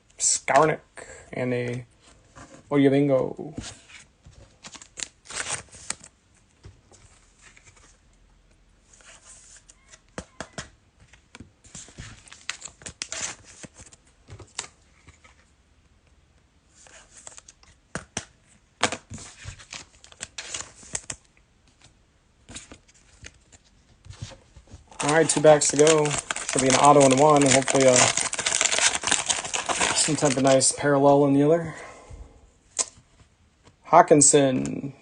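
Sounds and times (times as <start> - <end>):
cards shuffled by hand: 22.5 - 30.6
foil pack tearing: 24.9 - 30.6.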